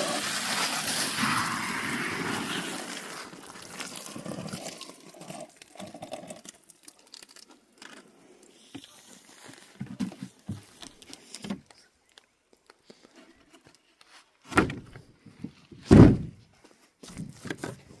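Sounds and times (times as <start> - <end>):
knocks and thumps: 14.6 - 16.4
heavy thuds: 15.8 - 16.4.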